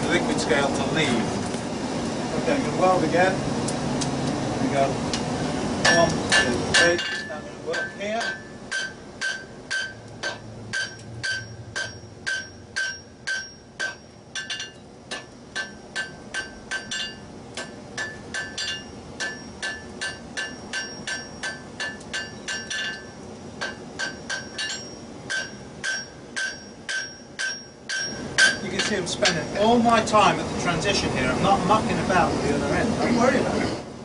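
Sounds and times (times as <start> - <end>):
hammer striking iron on anvil: 5.8 - 29.5.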